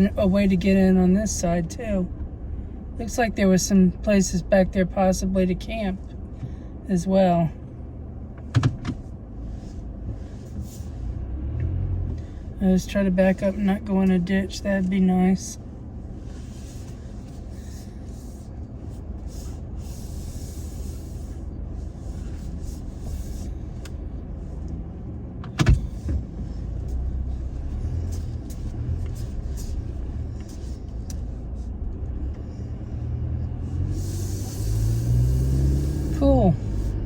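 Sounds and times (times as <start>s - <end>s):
truck engine and road rumble: 0.0s - 37.0s.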